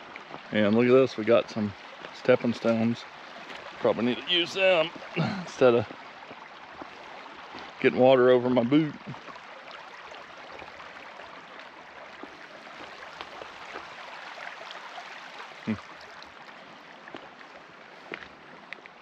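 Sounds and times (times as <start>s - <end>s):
creek water over stones: 0.0s - 19.0s.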